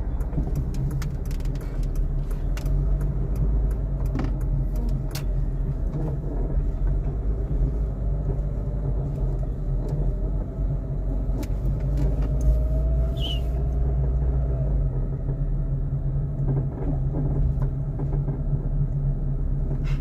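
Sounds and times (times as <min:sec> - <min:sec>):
low rumble inside moving car: 0:00.0 - 0:20.0
short squeak: 0:13.2 - 0:13.6.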